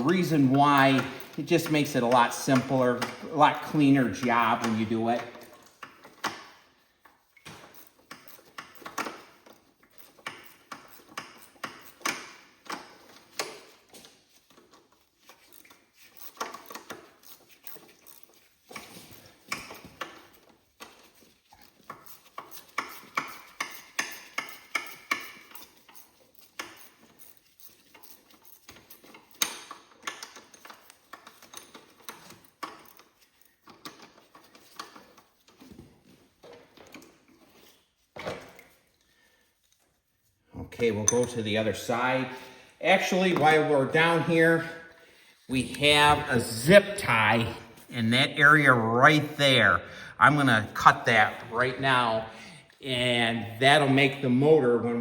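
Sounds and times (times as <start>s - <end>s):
ratchet wrench clicking: 15.4s - 20.3s, 21.1s - 35.0s
metallic clinks of tool on frame: 41.0s - 41.4s.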